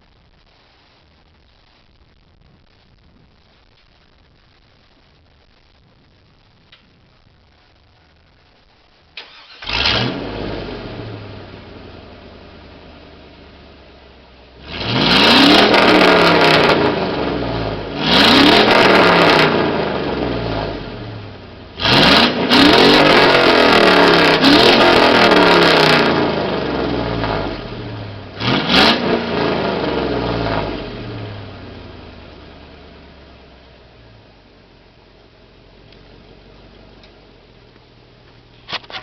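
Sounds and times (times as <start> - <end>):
truck engine idling and revving: 9.3 - 39.0.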